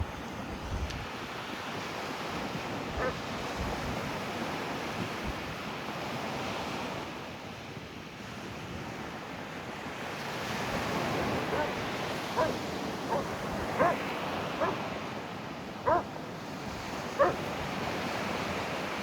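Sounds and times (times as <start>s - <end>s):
wind buffeting microphone: 2.2s - 4.3s, 10.5s - 15.0s.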